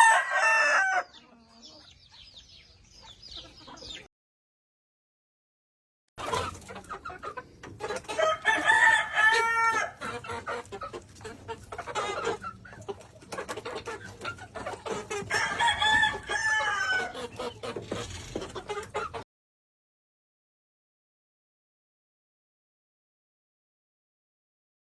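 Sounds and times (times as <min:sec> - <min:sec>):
roosters crowing: 0:00.0 - 0:01.3, 0:08.1 - 0:10.4, 0:15.1 - 0:17.4
hens clucking: 0:00.0 - 0:04.1, 0:06.2 - 0:19.2.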